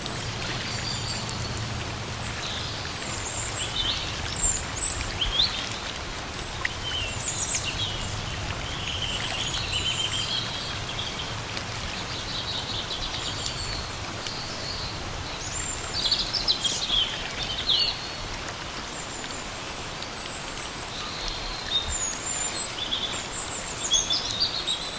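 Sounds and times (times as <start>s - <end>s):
steady rain in forest: 0.0s - 24.9s.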